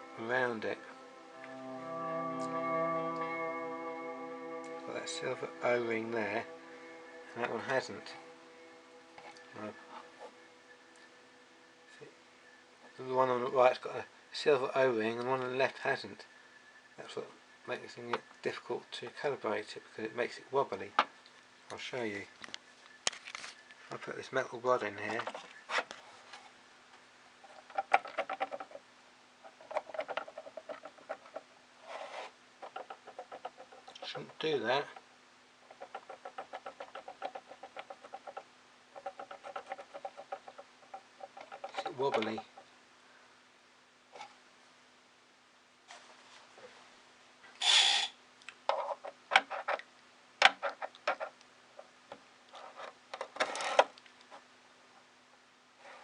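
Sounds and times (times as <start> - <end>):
rubbing scrape: 29.4 - 34.0, 39.0 - 42.5, 52.5 - 54.4
clicks and taps of parts: 48.4 - 52.2.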